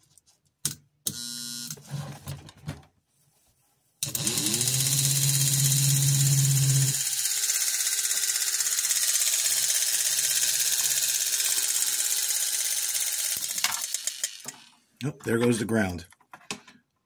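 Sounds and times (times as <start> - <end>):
model train motor whirring: 4.0 - 14.8.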